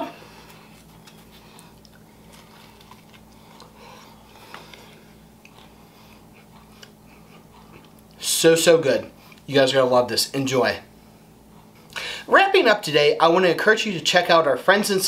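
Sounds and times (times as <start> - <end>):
steady low hum: 0.0 - 15.0
mouth clicks while chewing: 4.5 - 7.0.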